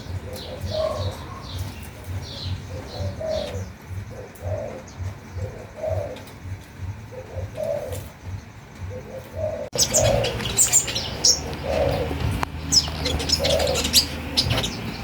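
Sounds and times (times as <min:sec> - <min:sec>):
dove cooing: 0:00.0 - 0:15.0
small birds chirping: 0:00.0 - 0:15.0.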